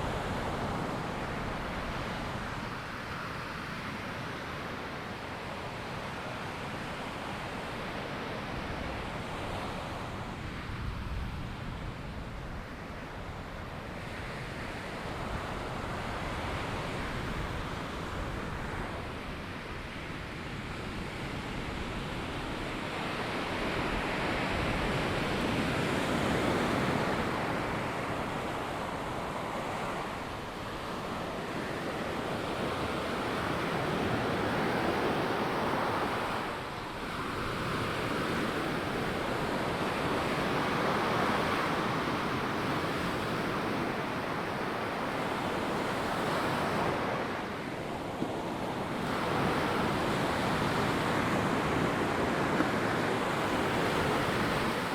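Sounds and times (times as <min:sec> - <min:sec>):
ocean surf breaking on beach: 0:00.0 - 0:54.9.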